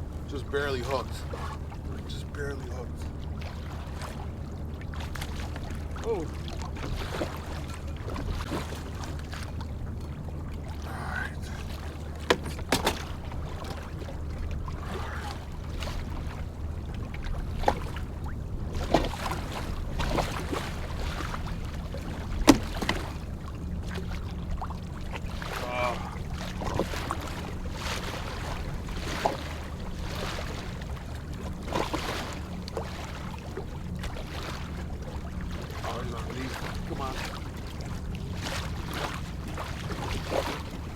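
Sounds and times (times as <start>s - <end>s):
steady low hum: 0.0s - 40.9s
knocks and handling clatter on kayak: 11.4s - 24.2s, 26.4s - 33.2s.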